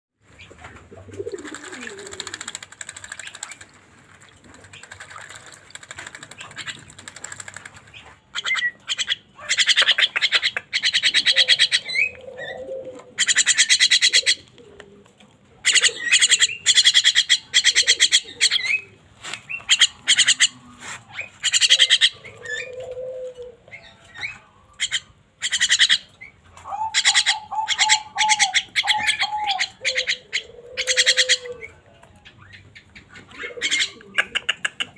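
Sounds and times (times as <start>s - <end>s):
bird harsh rasping chatter: 4.6s - 11.8s, 19.6s - 20.6s.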